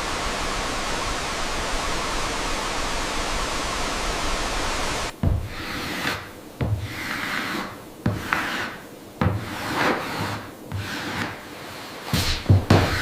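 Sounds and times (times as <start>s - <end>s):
hand tool rasping wood: 5.4s - 13.0s.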